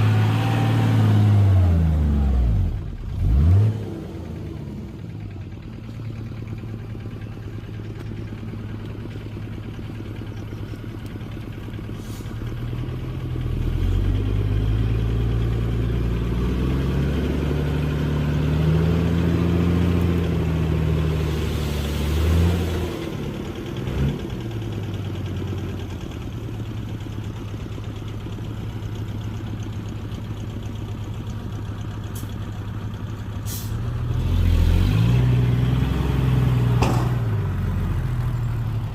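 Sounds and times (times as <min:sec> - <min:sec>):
heavy diesel engine revving: 0:00.0 - 0:05.2, 0:11.9 - 0:25.6, 0:33.5 - 0:38.9.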